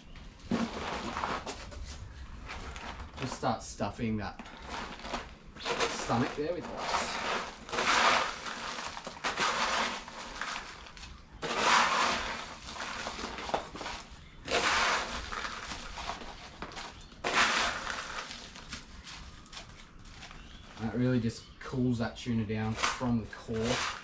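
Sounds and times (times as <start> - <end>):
ice crunching and rattling: 0.4 - 3.6, 4.3 - 21.1, 22.5 - 24.0.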